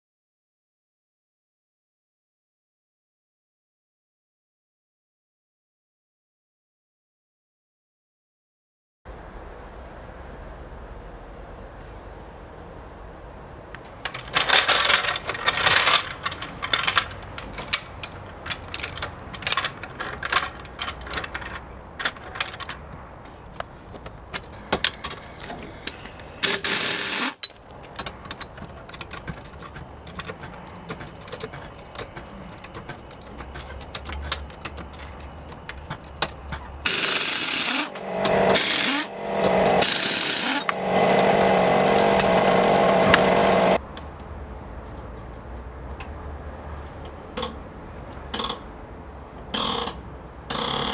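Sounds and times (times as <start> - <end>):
bearings grinding: 14.2 - 43.8
bearings squeaking and clicking: 16.2 - 36.9.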